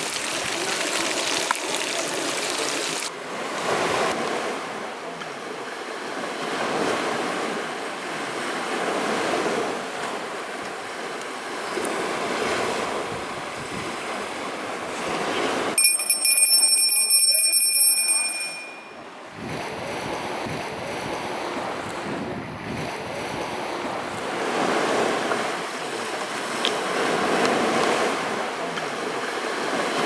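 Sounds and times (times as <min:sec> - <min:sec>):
wind: 0:00.0 - 0:30.0
high ringing tone: 0:15.8 - 0:19.1
small waves washing onto shore: 0:23.6 - 0:30.0.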